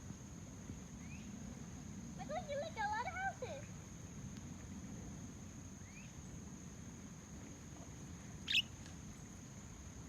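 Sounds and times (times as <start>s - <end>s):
budgerigar chirping: 8.5s - 8.7s.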